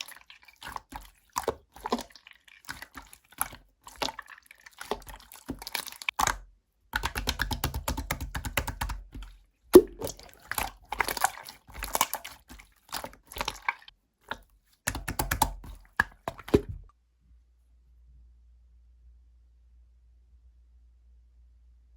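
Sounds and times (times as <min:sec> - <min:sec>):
slime squished by hand: 0:00.0 - 0:16.9.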